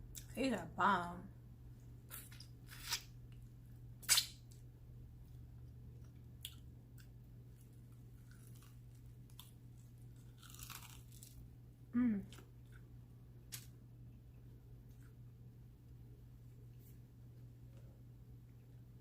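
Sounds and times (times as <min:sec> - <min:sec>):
chewing with small clicks: 0:06.0 - 0:07.1
loud crunchy bites: 0:10.2 - 0:11.4.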